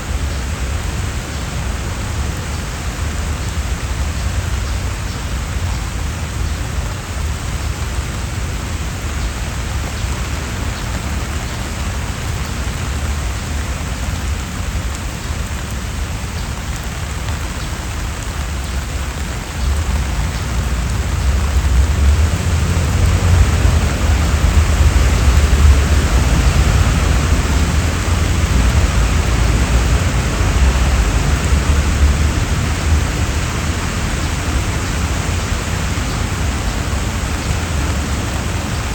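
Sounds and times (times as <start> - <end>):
rain on trees and paving: 0.0 - 38.9.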